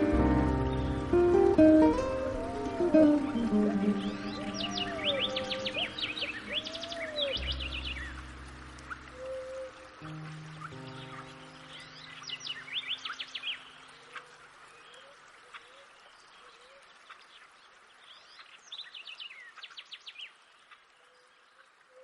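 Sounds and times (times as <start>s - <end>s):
music track held notes: 0.0s - 12.1s
songbirds chirping: 0.0s - 22.0s
steady background hiss: 0.0s - 22.0s.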